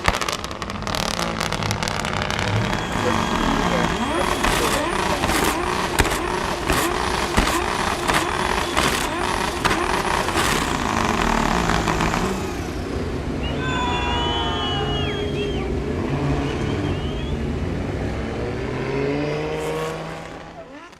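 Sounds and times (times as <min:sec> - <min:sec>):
exhaust cracks: 0:00.0 - 0:13.3, 0:19.2 - 0:20.9
car engine revving in blips: 0:00.0 - 0:13.6, 0:14.9 - 0:20.9.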